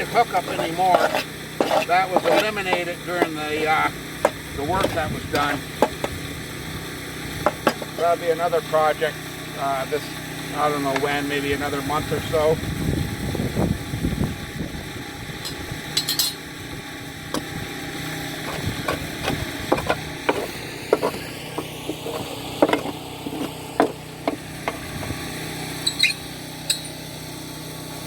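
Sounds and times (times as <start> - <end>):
metal tools clinking and scraping: 0.0 - 6.1, 7.5 - 8.0, 15.5 - 16.4, 18.4 - 24.9
steady low hum: 0.0 - 27.1.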